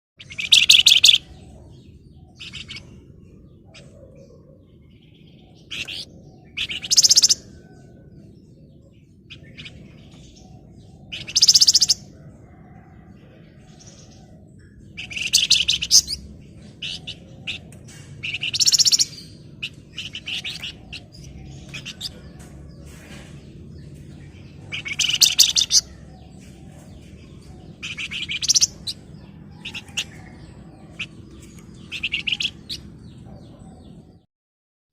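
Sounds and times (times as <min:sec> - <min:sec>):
songbird high-pitched trilling: 0:00.2 - 0:01.2, 0:05.6 - 0:07.5, 0:11.1 - 0:12.0, 0:15.0 - 0:17.6, 0:18.2 - 0:22.2, 0:24.6 - 0:26.1, 0:27.4 - 0:32.9.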